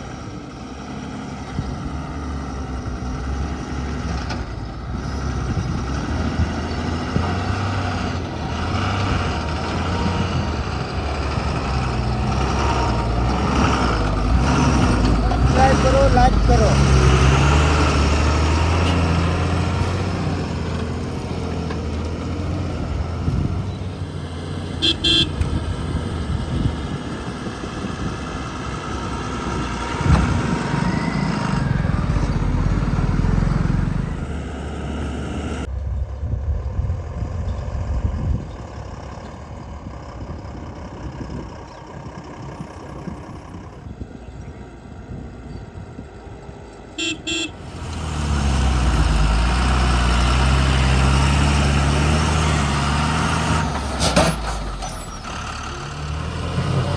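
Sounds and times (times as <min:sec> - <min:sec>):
heavy diesel engines working: 0:00.0 - 0:56.9
vehicle horn toot: 0:24.8 - 0:25.6, 0:47.0 - 0:47.7.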